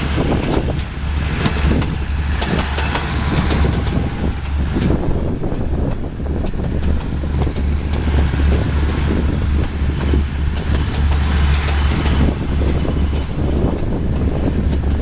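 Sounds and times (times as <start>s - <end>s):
low vehicle rumble: 0.0s - 15.0s
wind buffeting microphone: 0.0s - 15.0s.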